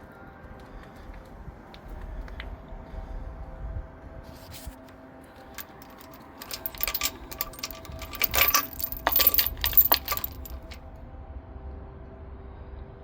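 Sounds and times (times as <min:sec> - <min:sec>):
small hard objects clinking: 0:05.6 - 0:10.8.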